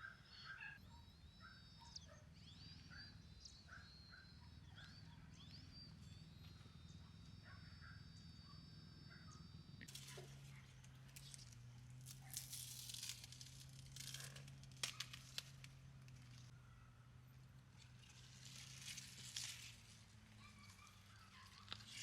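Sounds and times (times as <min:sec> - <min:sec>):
faint rustling and crinkling: 0:17.7 - 0:22.0.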